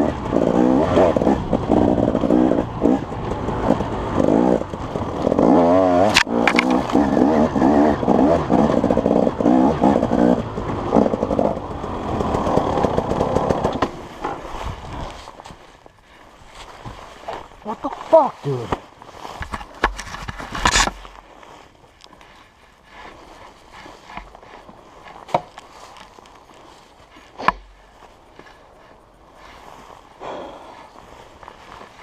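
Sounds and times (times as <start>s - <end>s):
small engine revving: 0.0s - 15.7s.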